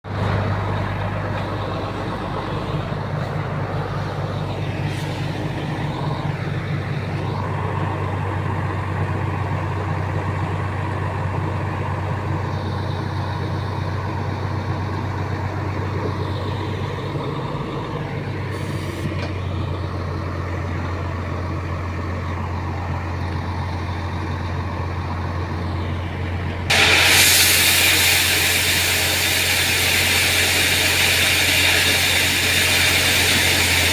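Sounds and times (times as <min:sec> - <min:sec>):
truck diesel engine humming: 0:00.0 - 0:33.9
loud hiss: 0:26.7 - 0:33.9.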